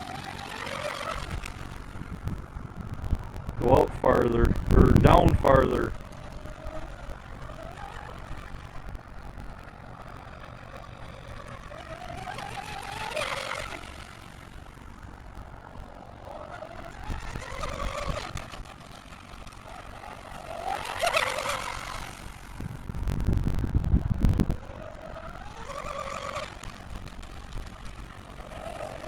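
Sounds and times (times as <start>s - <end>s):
boat motor whining: 0.0s - 29.0s
wind rumbling on microphone: 0.0s - 29.0s.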